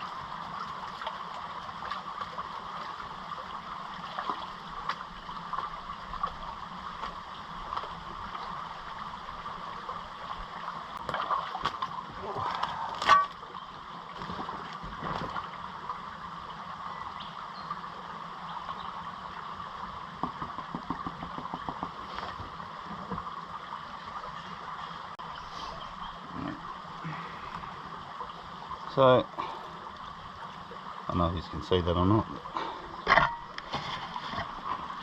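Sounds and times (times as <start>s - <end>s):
running water: 0.0s - 35.0s
water sloshing in a pan: 10.9s - 13.6s, 32.5s - 35.0s.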